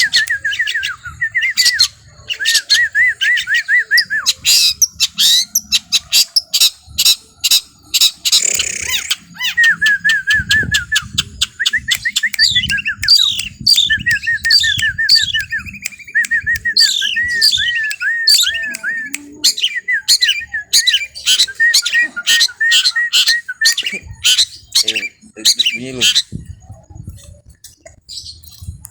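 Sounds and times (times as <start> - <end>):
bird harsh call: 0.0 - 10.2
songbird singing: 0.0 - 28.9.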